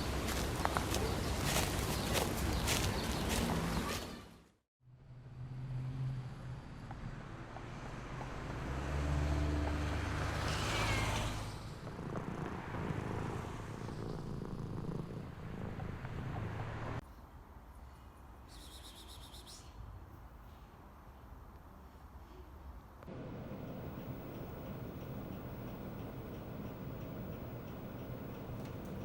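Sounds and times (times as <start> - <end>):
cat purring: 11.7 - 17.0, 23.2 - 29.0.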